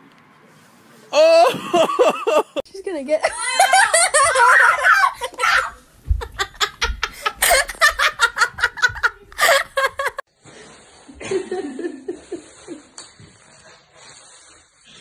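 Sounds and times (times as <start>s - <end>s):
people laughing hard: 1.5s - 2.6s, 3.3s - 10.2s.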